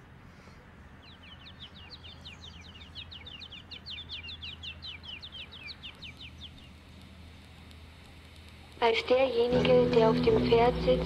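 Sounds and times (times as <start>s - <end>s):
bird singing falling chirps: 0.9s - 7.0s.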